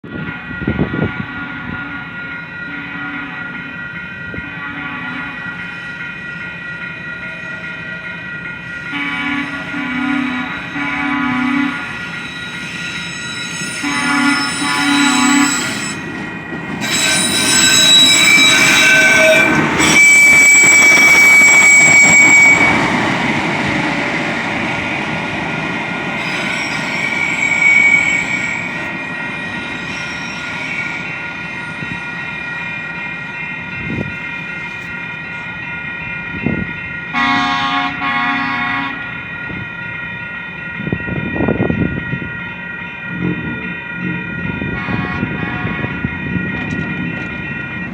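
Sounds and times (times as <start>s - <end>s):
rail noise: 0.0s - 47.9s
train horn blasts: 0.2s - 3.7s, 4.3s - 5.6s, 8.8s - 12.2s, 13.5s - 16.1s, 16.8s - 23.2s, 26.2s - 28.8s, 37.1s - 39.2s, 44.0s - 46.1s
train wheel squeal: 5.2s - 25.4s, 26.0s - 47.9s.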